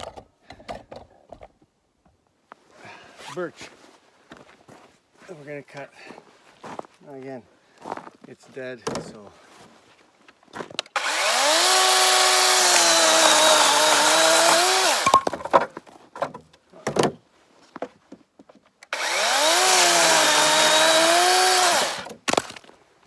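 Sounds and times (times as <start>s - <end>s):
cordless chainsaw cutting wood: 10.9s - 15.3s, 18.9s - 22.6s.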